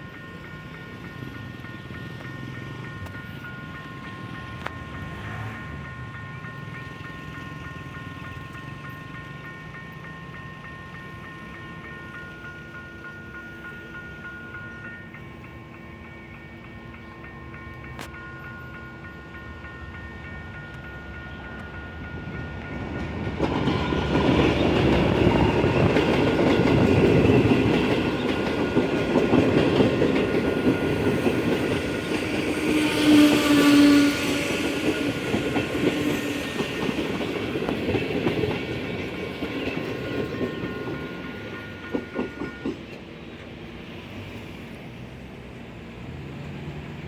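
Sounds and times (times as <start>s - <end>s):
crossing warning signal ringing: 0.0s - 43.0s
train wheels clicking over rail joints: 20.6s - 44.9s
train horn: 32.3s - 35.4s.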